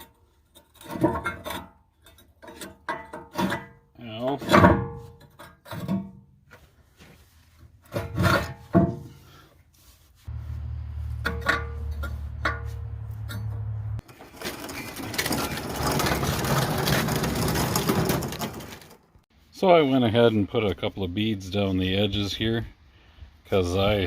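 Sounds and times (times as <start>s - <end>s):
low hum: 10.3s - 14.0s
metal knocks: 11.1s - 14.0s.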